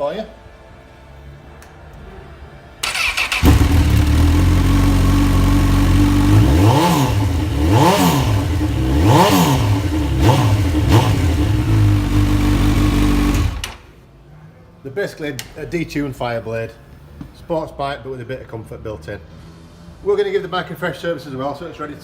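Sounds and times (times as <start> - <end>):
motorcycle starter cranking: 2.8 - 5.6, 12.1 - 13.9
motorcycle engine idling and revving: 2.8 - 13.8.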